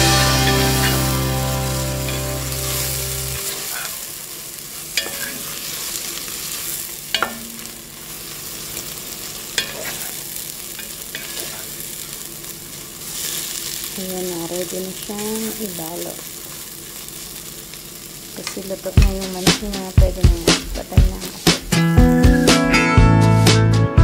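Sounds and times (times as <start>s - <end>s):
background music: 0.0s - 3.7s, 19.0s - 24.0s
food sizzling in a pot: 0.0s - 22.8s
spoon knocking against pot: 7.2s - 7.6s.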